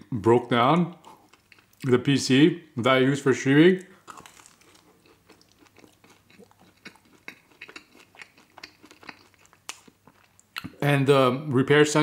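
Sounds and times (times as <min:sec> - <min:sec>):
chewing with mouth clicks: 0:01.0 - 0:01.9, 0:03.8 - 0:10.8.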